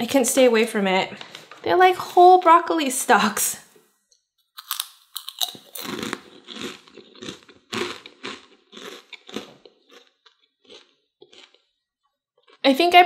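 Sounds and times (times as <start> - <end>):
chewing crunchy food: 4.5 - 12.8.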